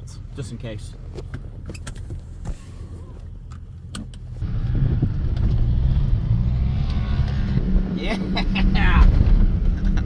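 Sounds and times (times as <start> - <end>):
truck accelerating: 4.4 - 10.0.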